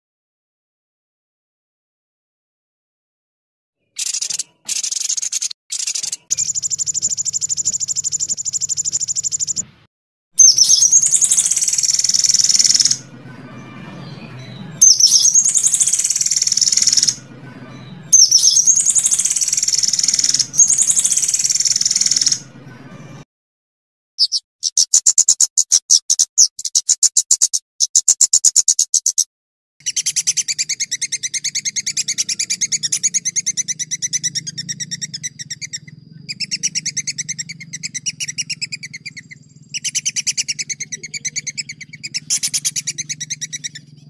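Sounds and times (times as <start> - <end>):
songbird rapid trills: 3.9 - 9.6, 10.4 - 13.8, 14.8 - 17.2, 18.1 - 22.5, 29.8 - 44.0.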